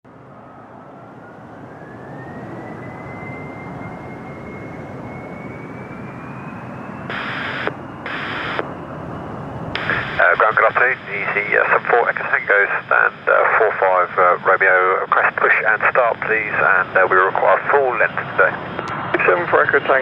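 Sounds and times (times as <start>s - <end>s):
jet engines running up: 0.1s - 20.0s
radio hiss bursts: 7.1s - 8.6s, 9.8s - 14.2s.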